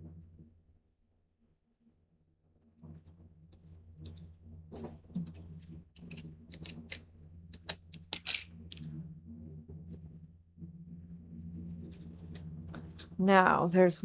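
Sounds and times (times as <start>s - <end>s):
paper and tape crinkling: 6.0s - 7.0s, 7.6s - 8.8s.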